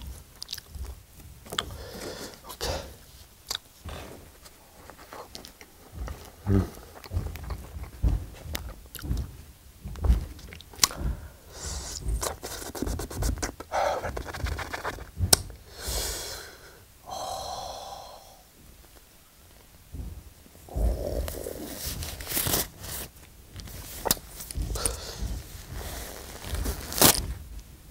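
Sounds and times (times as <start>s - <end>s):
man chewing with wet mouth clicks: 0.0s - 1.8s, 3.4s - 3.9s
puffing breaths: 1.6s - 18.9s, 19.9s - 27.5s.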